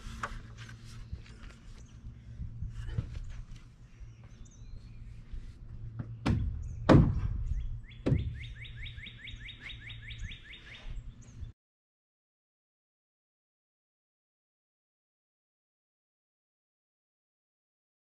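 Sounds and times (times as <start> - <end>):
steady low hum: 0.0 - 11.6
heavy knocks on timber: 6.0 - 8.6
bird chirping rapidly: 6.1 - 11.5.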